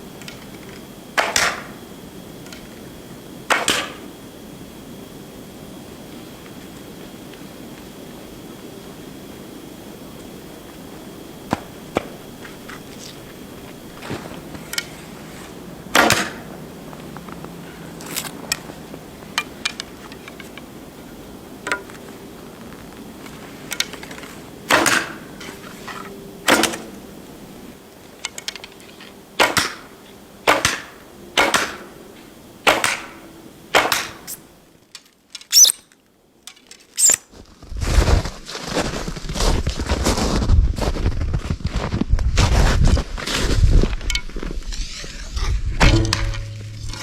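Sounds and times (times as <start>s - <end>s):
low rumbling noise: 40.4s - 47.0s
sharp impacts: 44.7s - 47.0s.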